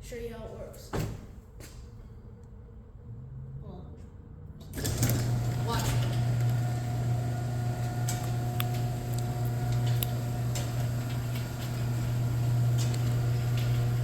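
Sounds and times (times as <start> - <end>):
garage door motor hum: 4.6 - 14.0.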